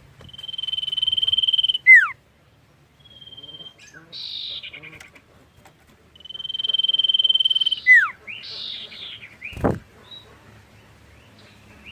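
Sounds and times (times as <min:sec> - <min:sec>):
short chirped bird notes: 0:00.2 - 0:02.1, 0:06.2 - 0:08.8
bird singing high whistle: 0:00.2 - 0:02.2, 0:03.0 - 0:04.6, 0:06.2 - 0:08.1.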